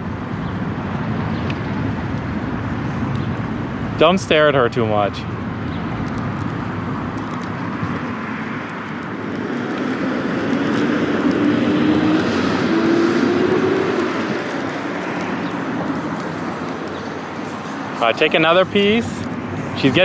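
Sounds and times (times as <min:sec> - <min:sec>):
road traffic: 0:00.0 - 0:20.0
vehicle engine passing: 0:09.2 - 0:19.2.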